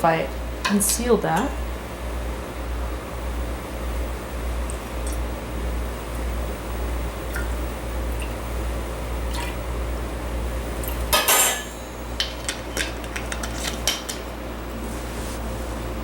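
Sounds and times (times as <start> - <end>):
dishes clinking: 11.1 - 14.2.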